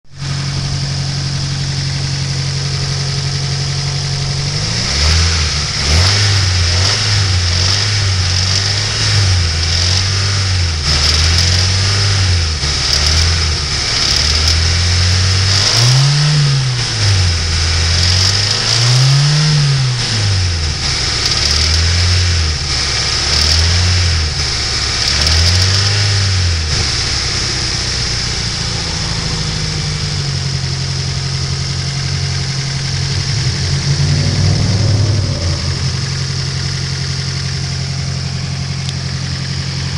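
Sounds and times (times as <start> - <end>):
car engine idling: 0.1 - 15.5, 26.3 - 39.9
engine tapping: 0.2 - 15.6, 26.5 - 39.9
engine revving: 0.2 - 39.9.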